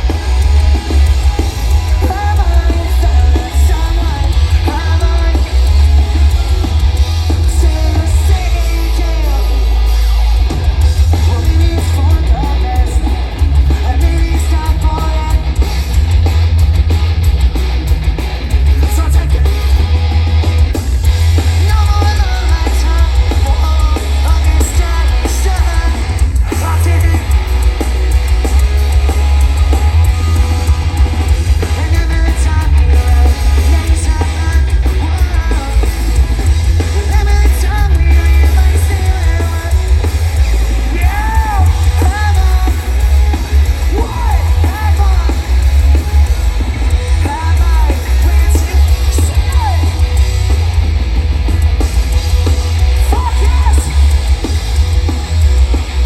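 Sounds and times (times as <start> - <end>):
shouted singing: 0.0 - 15.4, 29.2 - 46.3
bass: 0.0 - 56.0
distorted guitars: 0.0 - 56.0
drums: 0.0 - 56.0.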